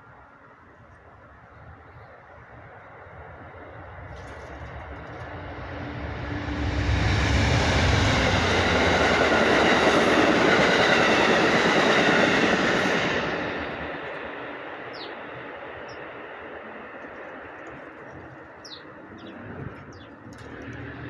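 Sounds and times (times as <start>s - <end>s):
passing vehicle rushing: 3.7s - 11.6s.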